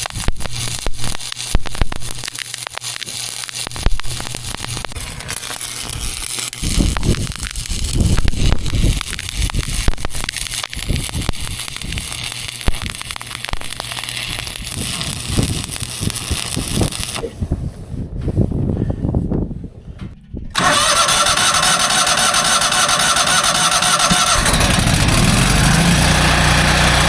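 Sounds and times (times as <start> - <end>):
welding arc crackling: 0.0 - 17.3, 20.6 - 27.0
wind buffeting microphone: 3.8 - 13.1, 14.2 - 21.0.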